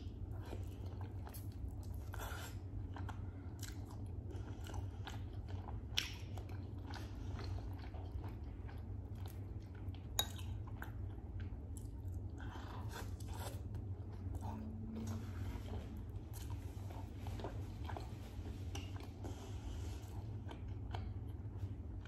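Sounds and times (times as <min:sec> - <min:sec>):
low hum: 0:00.0 - 0:22.0
chewing and biting food: 0:00.1 - 0:22.0.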